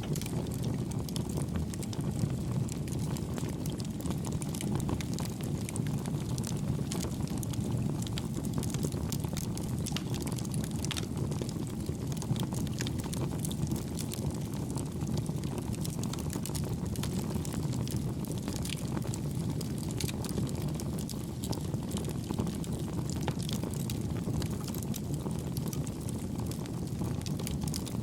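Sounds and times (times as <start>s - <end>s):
campfire flames rushing: 0.0s - 28.0s
fire crackling and popping: 0.0s - 28.0s.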